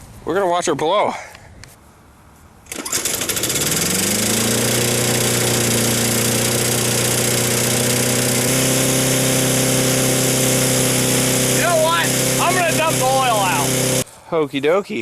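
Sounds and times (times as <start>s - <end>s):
lawn mower engine revving: 2.7s - 14.0s.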